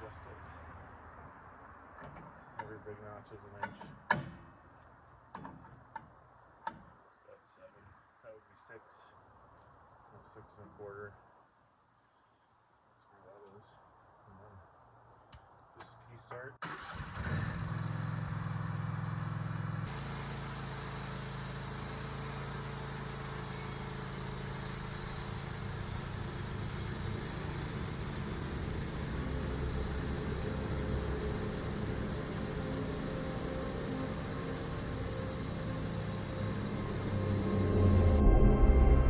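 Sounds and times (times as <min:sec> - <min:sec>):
sawmill engine running: 0:16.8 - 0:39.0
steady high hiss: 0:19.8 - 0:38.2.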